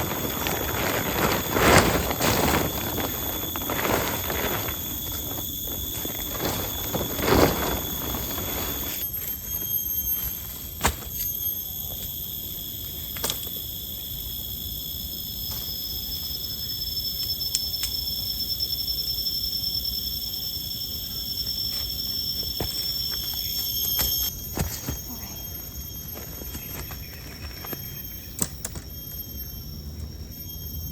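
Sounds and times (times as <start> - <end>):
rustle: 0.0 - 9.3
insect chorus: 0.0 - 30.9.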